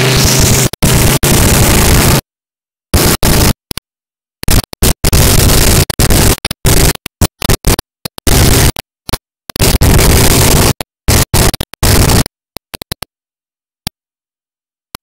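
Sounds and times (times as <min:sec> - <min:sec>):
harsh static noise bursts: 0:00.0 - 0:02.3, 0:02.9 - 0:03.8, 0:04.4 - 0:12.3
isolated clicks: 0:04.4 - 0:13.1.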